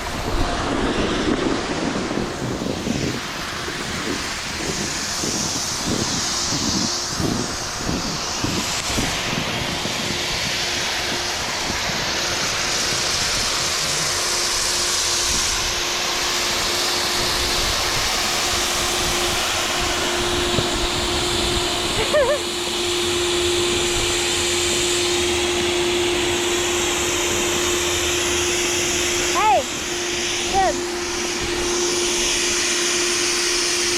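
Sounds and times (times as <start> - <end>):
machine hum: 0.0 - 33.9
snowboard hissing on snow: 0.0 - 33.9.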